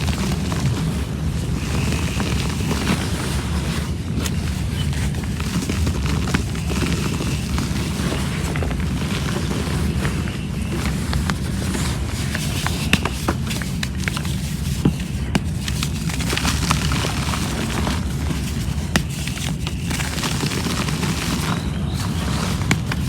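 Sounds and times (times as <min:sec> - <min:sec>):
sharp cracks and crackles: 0:00.0 - 0:23.0
steady low rumble: 0:00.0 - 0:23.0
cement chunks crumbling: 0:04.3 - 0:23.0.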